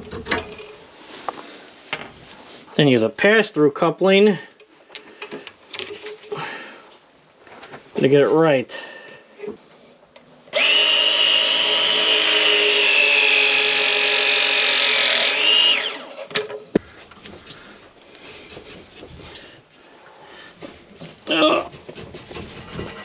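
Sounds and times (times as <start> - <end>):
power tool motor winding down: 10.5 - 16.2.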